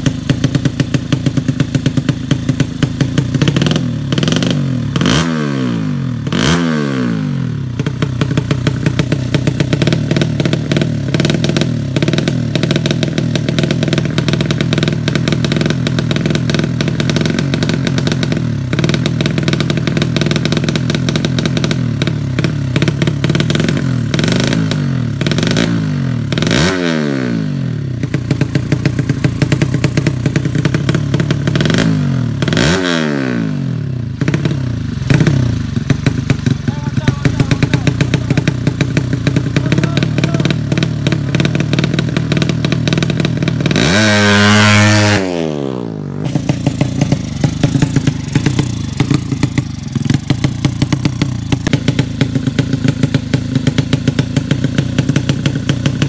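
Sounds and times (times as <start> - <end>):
motorcycle engine at high revs: 0.0 - 56.0.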